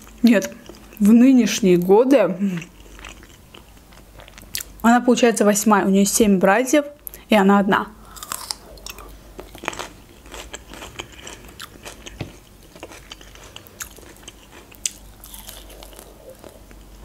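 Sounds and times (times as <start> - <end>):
crunchy chewing: 2.6 - 4.8, 8.1 - 17.0.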